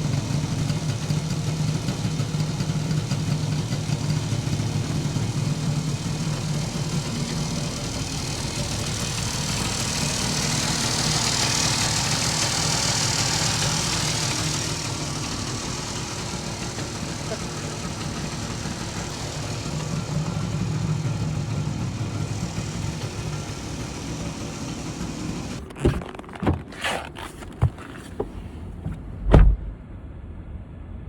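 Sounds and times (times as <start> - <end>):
two-stroke engine idling: 0.0 - 25.6.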